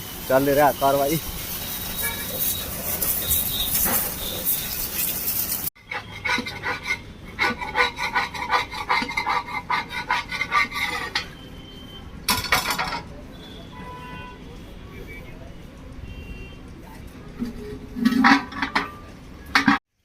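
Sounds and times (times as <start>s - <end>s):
short burst of hiss: 0.0s - 5.7s
rapid scraping strokes: 0.3s - 11.2s.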